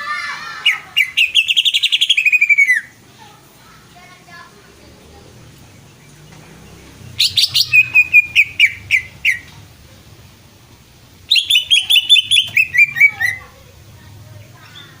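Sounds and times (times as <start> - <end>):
bird singing sharp high chirps: 0.7 - 3.0, 5.8 - 9.5, 11.3 - 13.5.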